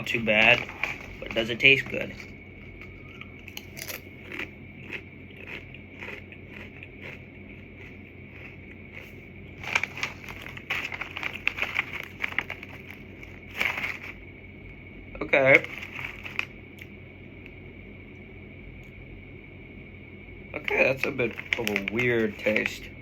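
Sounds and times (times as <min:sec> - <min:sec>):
crunching on crisps: 0:00.0 - 0:14.2, 0:15.2 - 0:16.5, 0:20.6 - 0:22.9.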